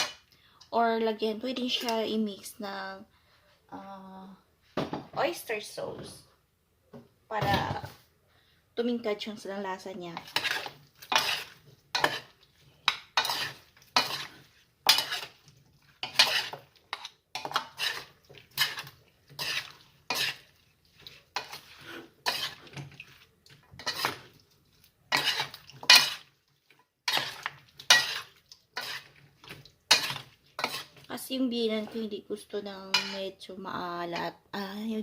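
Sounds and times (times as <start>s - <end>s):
utensil stirring and scraping in a bowl: 10.0s - 33.4s.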